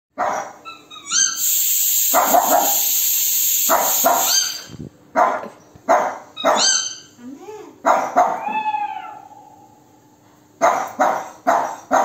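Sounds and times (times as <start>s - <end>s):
dog barking: 0.2s - 0.6s, 2.1s - 2.8s, 3.7s - 4.6s, 5.2s - 6.8s, 7.8s - 8.5s, 10.6s - 12.0s
high-pitched hiss: 1.4s - 4.8s.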